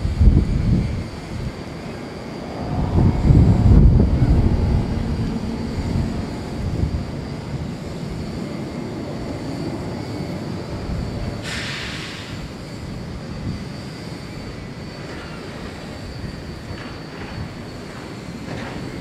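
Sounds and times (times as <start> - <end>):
jet engines rumbling: 0.0 - 19.0
brief hiss: 11.4 - 12.4.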